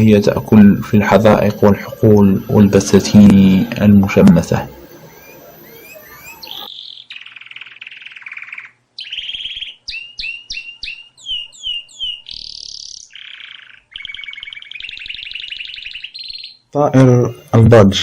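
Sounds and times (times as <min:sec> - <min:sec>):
buzzy chattering bird trills: 0:00.0 - 0:17.6
descending bird whistles: 0:04.5 - 0:17.5.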